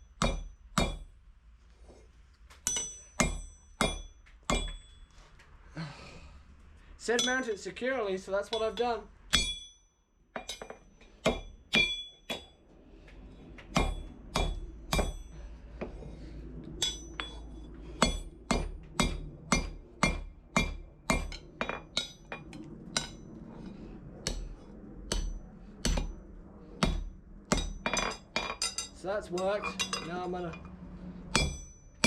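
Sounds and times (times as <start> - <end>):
hammer striking metal on anvil: 0.0 - 1.1, 2.6 - 5.0, 7.2 - 7.6, 8.5 - 9.8, 10.4 - 12.5, 13.7 - 15.3, 16.8 - 17.4, 18.0 - 23.2, 25.1 - 26.2, 26.8 - 30.6, 31.3 - 32.0.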